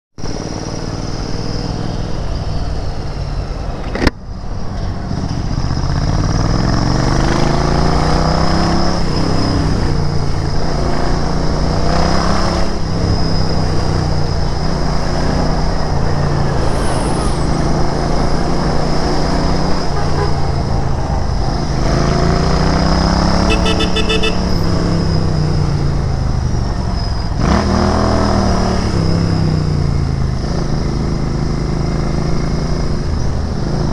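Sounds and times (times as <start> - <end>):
motorcycle engine revving: 5.1 - 16.8, 20.8 - 26.7
short beeps: 23.4 - 24.7.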